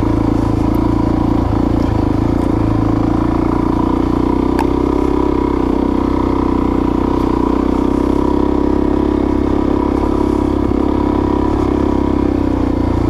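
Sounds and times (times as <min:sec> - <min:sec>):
single-cylinder engine running: 0:00.0 - 0:13.0.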